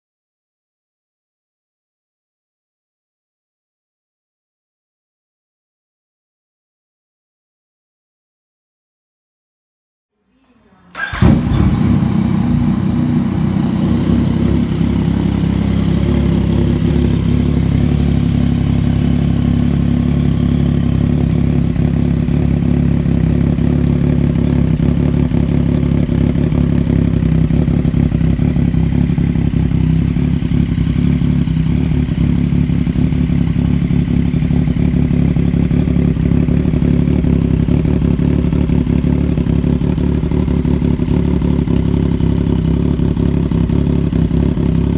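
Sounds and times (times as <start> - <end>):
motorcycle engine starting and idling: 10.8 - 44.9.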